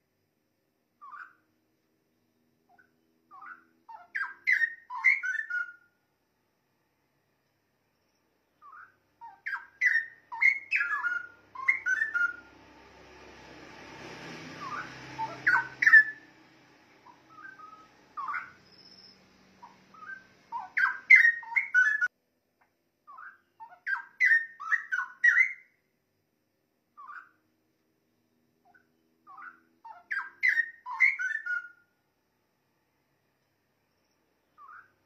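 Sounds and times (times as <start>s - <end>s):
low rushing background noise: 6.0s - 22.5s
bird singing bubbling whistles: 8.6s - 12.4s, 14.6s - 16.2s, 17.3s - 19.2s, 19.9s - 22.1s, 23.1s - 25.7s, 30.1s - 31.8s.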